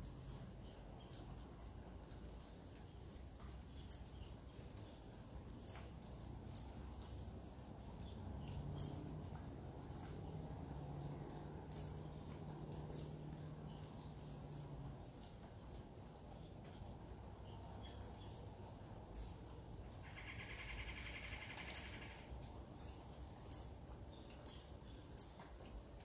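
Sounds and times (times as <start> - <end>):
faint steady low hum: 0.0 - 26.0
bird chirping: 11.7 - 18.4, 19.1 - 22.2.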